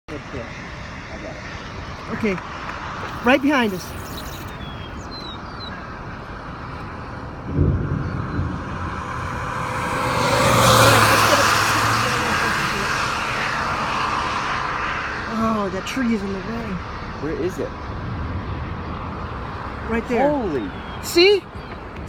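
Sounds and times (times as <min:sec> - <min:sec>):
road and engine noise: 0:00.0 - 0:22.0
thump: 0:07.5 - 0:09.9.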